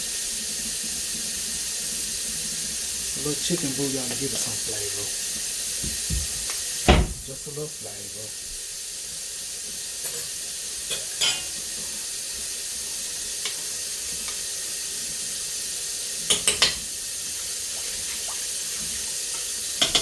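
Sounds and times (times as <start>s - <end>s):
pots hissing on a stovetop: 0.0s - 20.0s
utensil clinking on a pot: 10.9s - 11.5s, 16.3s - 16.8s, 19.8s - 20.0s.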